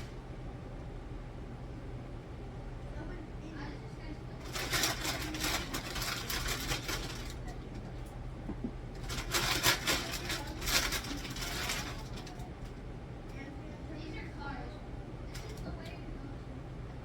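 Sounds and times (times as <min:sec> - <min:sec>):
items clattering and crinkling: 0:04.4 - 0:07.9, 0:08.6 - 0:12.5.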